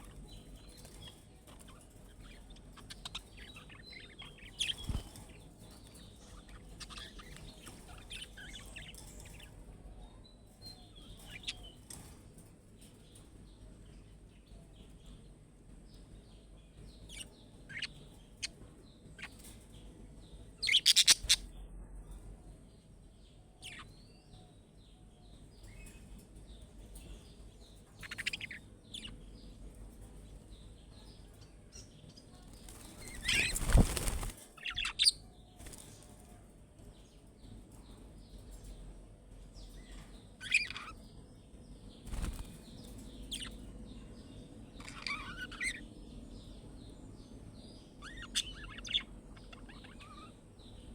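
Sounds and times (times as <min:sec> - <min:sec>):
wing flapping: 0:04.6 - 0:05.4, 0:32.5 - 0:34.9, 0:42.0 - 0:42.7
budgerigars chirping: 0:20.7 - 0:21.4.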